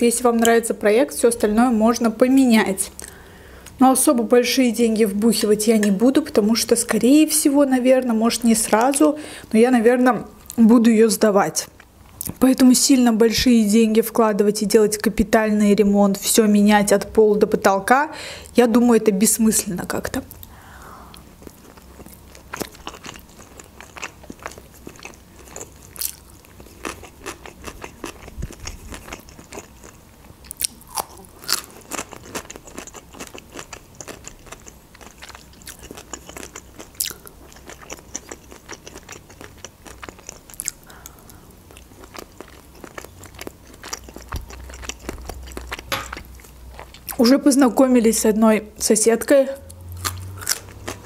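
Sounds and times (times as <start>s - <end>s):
person chewing and crunching food: 20.3s - 47.2s, 49.7s - 51.0s.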